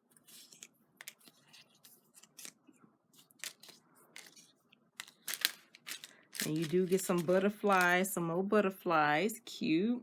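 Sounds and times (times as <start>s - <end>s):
paper rustling: 0.1s - 7.9s.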